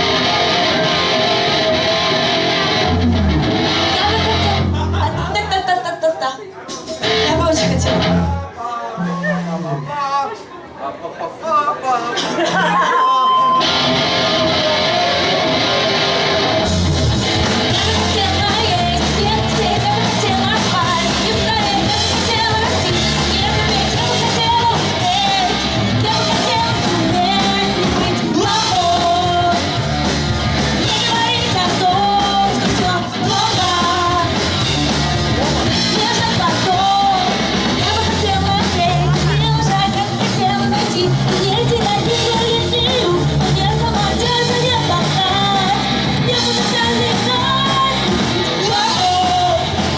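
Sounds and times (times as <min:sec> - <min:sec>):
person singing: 0:00.0 - 0:05.6, 0:13.0 - 0:15.8, 0:17.5 - 0:29.8, 0:30.7 - 0:49.9
pop-punk band playing live: 0:00.0 - 0:06.1, 0:06.7 - 0:10.5, 0:12.1 - 0:49.9.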